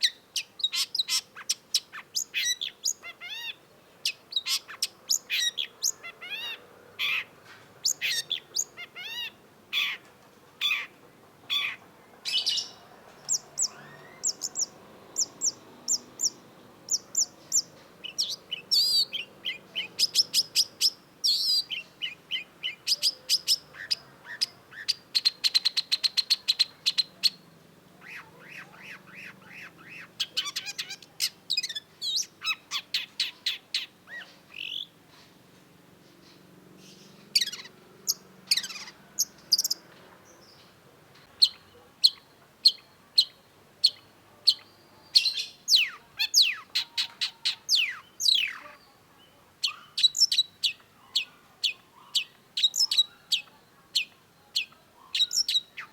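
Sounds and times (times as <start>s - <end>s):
shrike singing: 7.9s - 27.4s.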